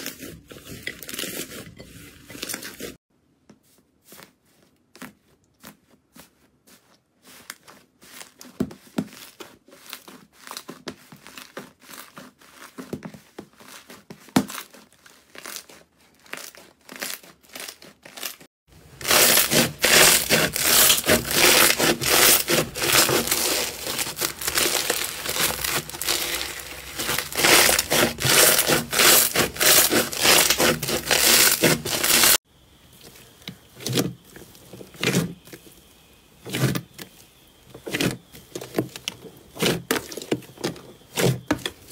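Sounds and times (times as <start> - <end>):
slime crackling and squishing: 4.1 - 37.2.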